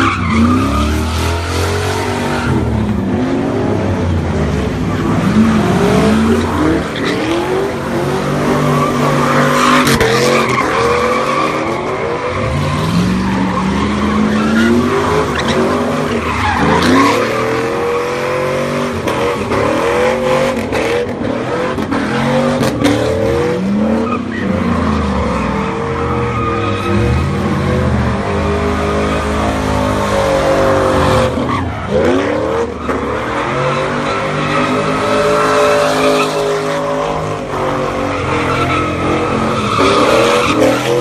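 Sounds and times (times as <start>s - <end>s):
car engines revving: 0.0s - 41.0s
tires screeching: 0.0s - 41.0s.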